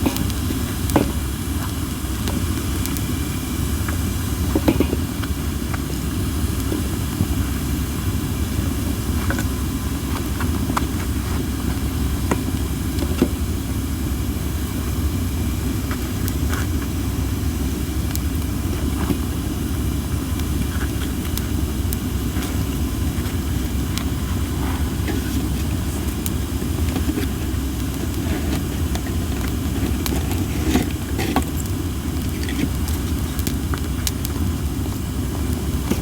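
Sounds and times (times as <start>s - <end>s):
campfire crackling and popping: 0.0s - 36.0s
hissing wood: 15.6s - 36.0s
low rumble: 22.1s - 28.1s.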